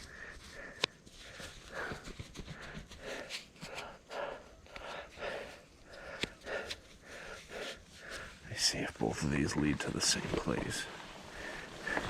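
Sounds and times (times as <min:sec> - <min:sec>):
person breathing heavily: 0:00.0 - 0:08.5, 0:10.9 - 0:12.0.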